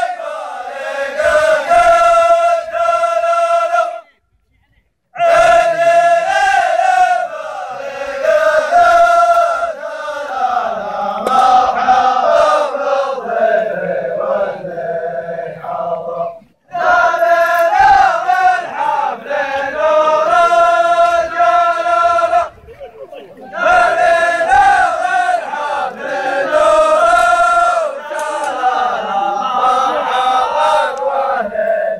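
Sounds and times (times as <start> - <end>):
men chanting in unison: 0.0 - 4.0, 5.2 - 22.6, 23.2 - 31.9.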